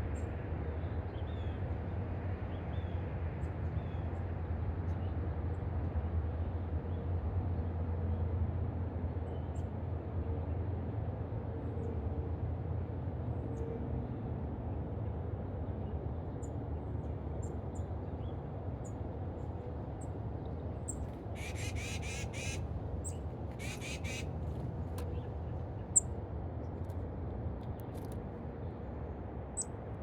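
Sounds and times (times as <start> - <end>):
birds chirping high: 20.9 - 26.1
harsh raspy bird calls: 21.4 - 24.4.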